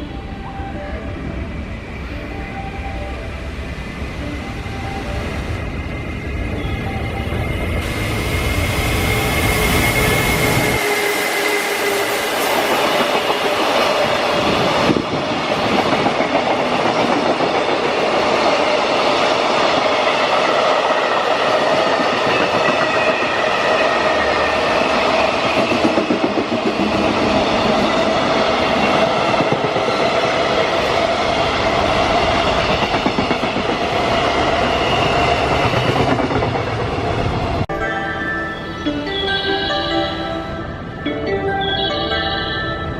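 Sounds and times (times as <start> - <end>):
train wheels on rails: 3.9 - 37.7.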